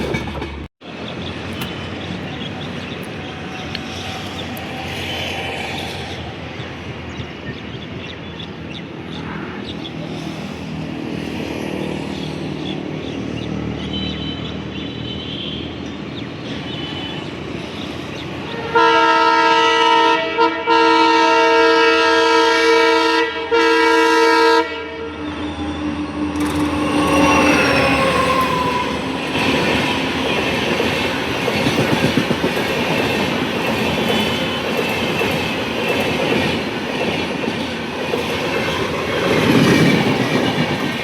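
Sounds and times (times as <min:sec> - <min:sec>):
train rumbling on track: 0:00.0 - 0:41.0
locomotive multi-tone horn blasts: 0:13.8 - 0:15.8, 0:18.4 - 0:30.1.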